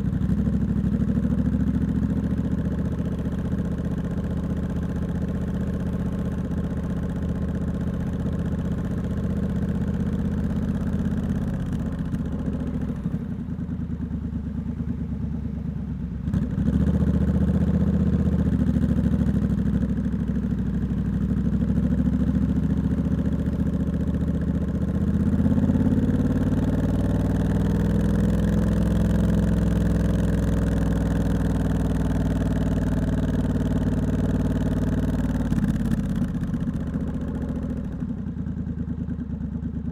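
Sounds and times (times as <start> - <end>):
motorcycle engine with loud exhaust: 0.0 - 39.9.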